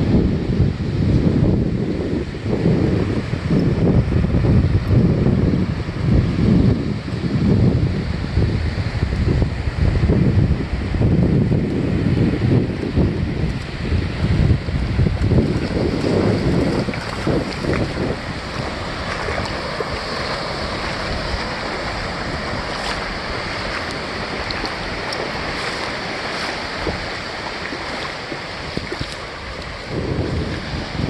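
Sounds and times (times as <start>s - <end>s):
ocean surf washing: 0.0s - 31.0s
wind buffeting microphone: 0.0s - 31.0s.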